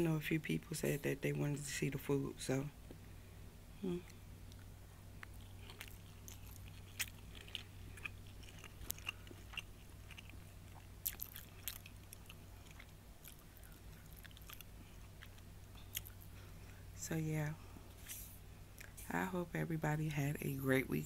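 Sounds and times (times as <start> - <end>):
low steady hum: 0.0 - 21.0
chewing: 4.0 - 16.5.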